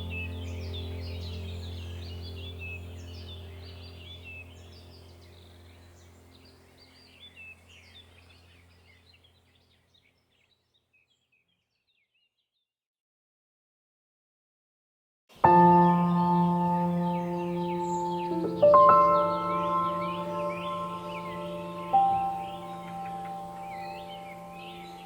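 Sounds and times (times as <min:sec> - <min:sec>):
low droning tone: 0:00.0 - 0:07.5, 0:15.6 - 0:25.0
small birds chirping: 0:00.0 - 0:12.7, 0:15.4 - 0:25.0.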